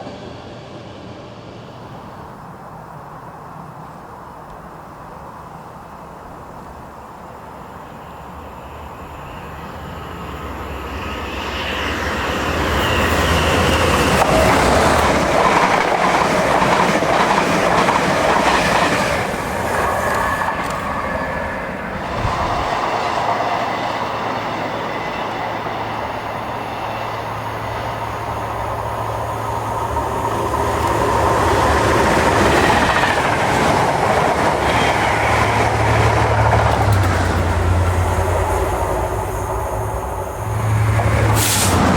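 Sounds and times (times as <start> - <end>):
train passing: 0.0 - 41.9
wheels clattering over rail joints: 30.7 - 38.3.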